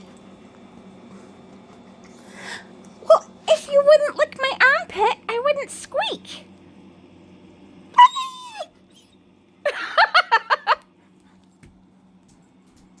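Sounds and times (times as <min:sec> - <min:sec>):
puppy whining and yipping: 0:08.0 - 0:09.2.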